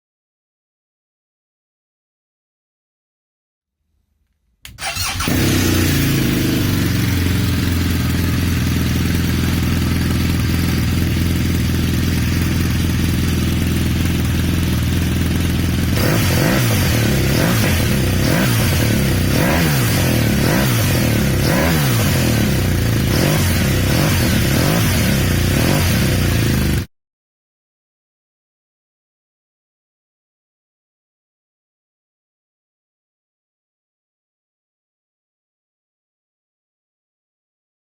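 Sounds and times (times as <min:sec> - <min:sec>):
motorcycle engine revving: 0:04.7 - 0:26.9
motorcycle engine idling: 0:04.8 - 0:26.9.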